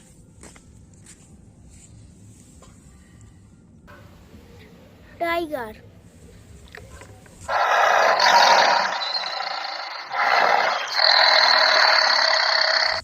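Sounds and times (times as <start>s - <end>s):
tiger roaring: 7.5s - 13.0s.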